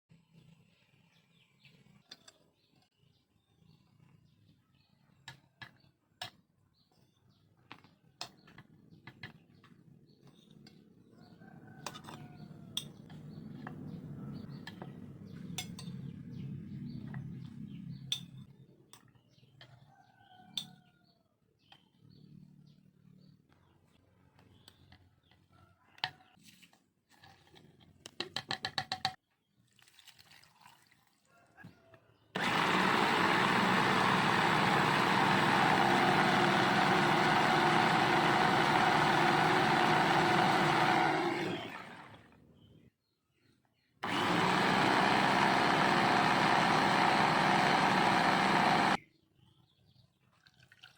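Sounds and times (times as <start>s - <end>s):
fast run of clicks: 32.4s - 42.2s, 44.0s - 49.0s.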